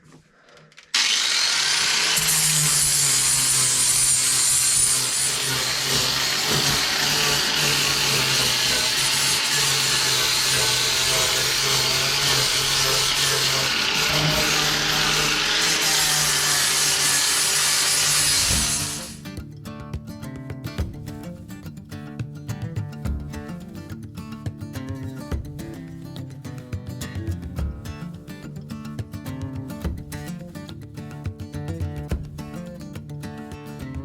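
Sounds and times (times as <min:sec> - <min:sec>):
electric sander on wood: 0:01.0 - 0:19.2.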